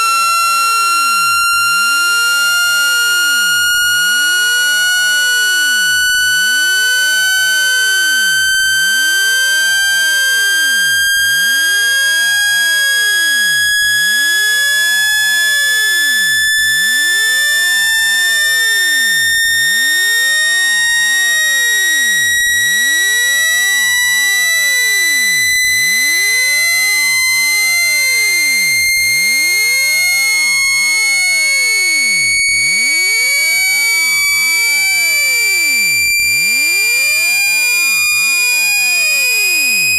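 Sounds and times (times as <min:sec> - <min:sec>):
rising electronic test tone: 0:00.0 - 0:39.9.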